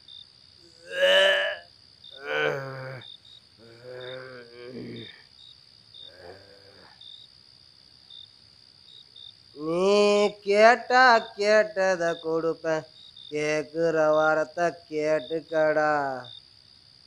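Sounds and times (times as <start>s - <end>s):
faint cricket chirps: 0.0s - 17.0s
old man groaning and moaning: 0.7s - 1.6s, 2.2s - 5.2s, 6.1s - 7.0s, 9.6s - 10.4s.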